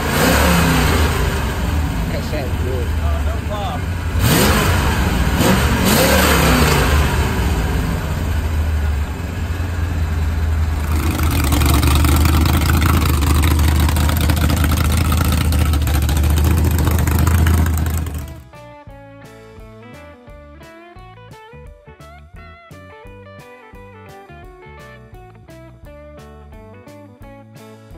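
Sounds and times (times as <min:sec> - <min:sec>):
car engine revving and rumbling: 0:00.0 - 0:18.5.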